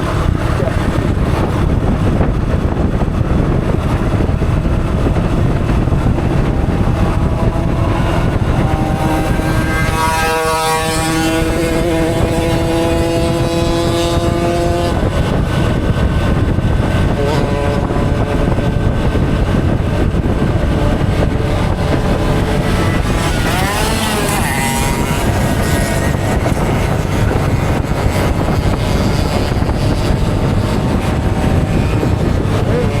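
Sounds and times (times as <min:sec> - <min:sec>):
motorcycle engine running: 0:00.0 - 0:33.0
wind noise on microphone: 0:00.0 - 0:33.0.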